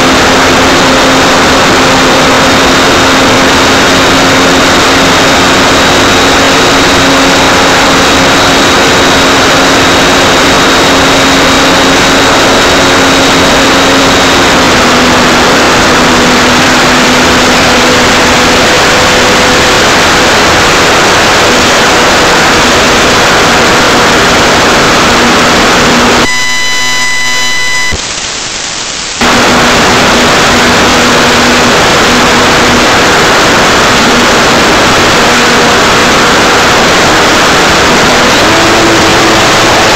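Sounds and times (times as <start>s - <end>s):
model plane propeller and wind noise: 0.0s - 28.0s, 28.9s - 39.9s
buzzing glitch: 0.0s - 39.9s
faint steady hum: 22.4s - 38.3s.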